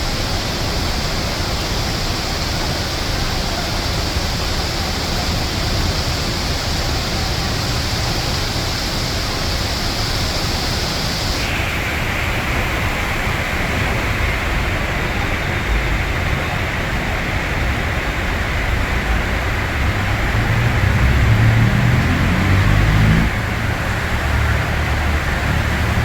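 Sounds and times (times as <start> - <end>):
heavy rain: 0.0 - 26.0
traffic rumbling: 0.0 - 26.0
vehicle rumble: 12.5 - 26.0.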